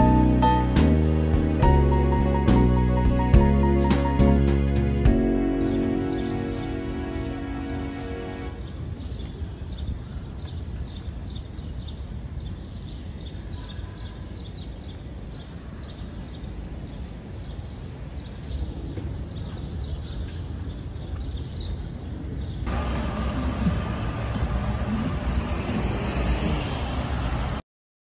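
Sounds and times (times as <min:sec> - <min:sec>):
low outdoor rumble: 0:00.0 - 0:08.7, 0:22.7 - 0:27.6.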